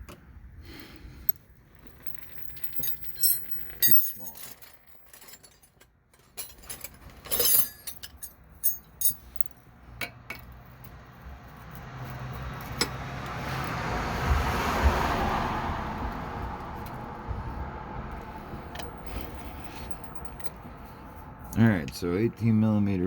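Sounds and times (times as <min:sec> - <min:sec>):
metal wrenches clinking: 0:01.2 - 0:13.0, 0:18.1 - 0:21.6
passing vehicle hum: 0:09.2 - 0:23.0.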